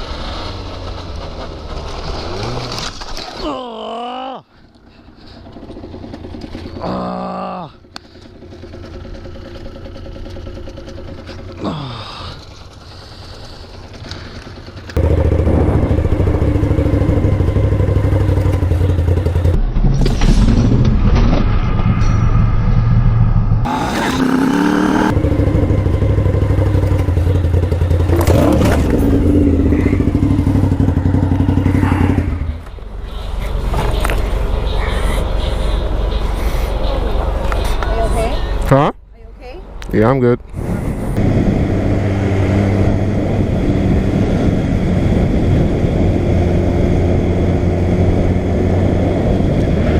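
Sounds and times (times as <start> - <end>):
motorcycle engine running: 4.8 - 19.7, 23.6 - 36.3.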